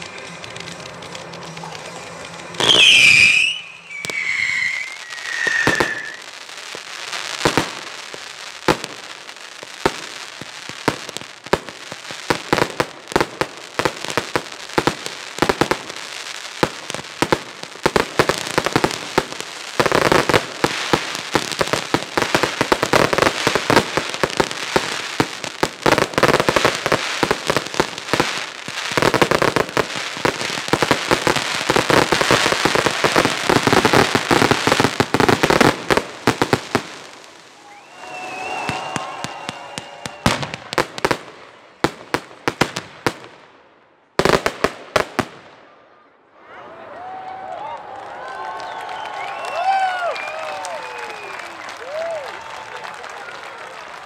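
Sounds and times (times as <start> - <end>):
falling firework whistles: 0.0 - 6.5, 37.4 - 40.8, 48.6 - 52.2
firework bangs and crackling: 0.0 - 45.7, 48.2 - 54.0.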